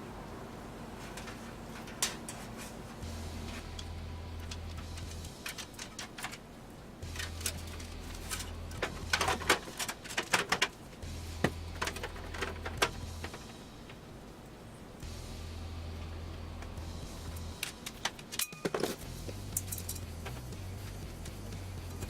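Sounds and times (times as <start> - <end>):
low hum: 0.0 - 18.1, 19.0 - 22.0
computer case parts clattering: 1.0 - 2.8, 4.5 - 10.8, 11.4 - 13.5, 17.6 - 19.0.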